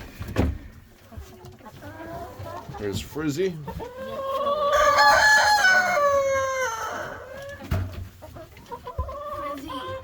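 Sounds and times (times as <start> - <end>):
chickens clucking: 0.0 - 10.0
rooster crowing: 4.7 - 7.2.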